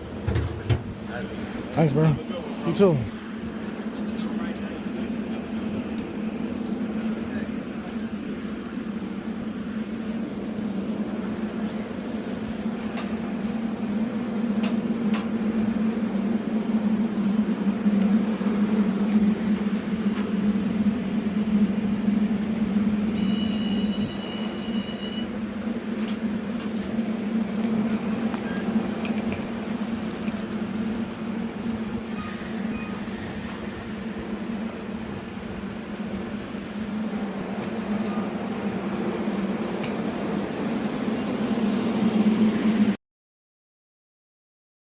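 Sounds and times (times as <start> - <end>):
train rumbling: 0.0 - 43.0
high-pitched tone: 22.3 - 25.4.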